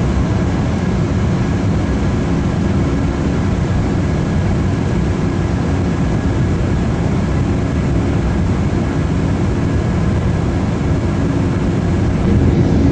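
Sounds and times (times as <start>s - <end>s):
jet engine rumble: 0.0s - 12.9s
faint high whine: 6.1s - 12.9s.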